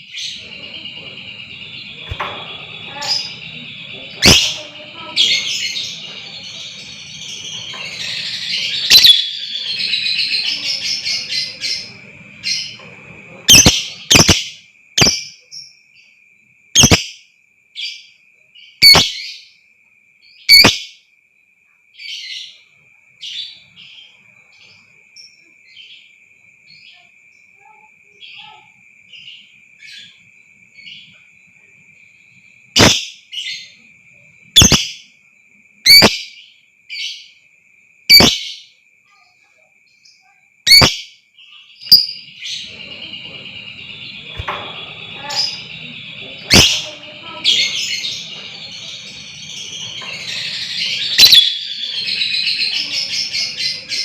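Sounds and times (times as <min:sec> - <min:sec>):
lovebirds chattering and calling: 0:00.0 - 0:16.1, 0:16.8 - 0:17.2, 0:17.8 - 0:19.5, 0:20.3 - 0:21.0, 0:32.6 - 0:35.2, 0:35.9 - 0:37.4, 0:38.1 - 0:38.7, 0:40.0 - 0:54.0.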